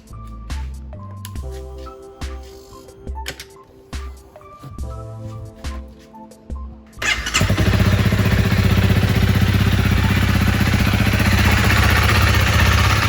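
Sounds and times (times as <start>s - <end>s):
motorcycle engine idling: 7.0s - 13.0s.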